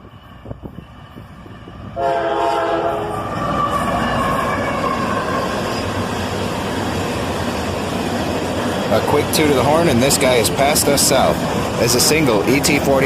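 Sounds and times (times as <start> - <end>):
rail noise: 0.0 - 13.0
train rumble passing: 0.0 - 13.0
locomotive horn toot: 2.0 - 3.2.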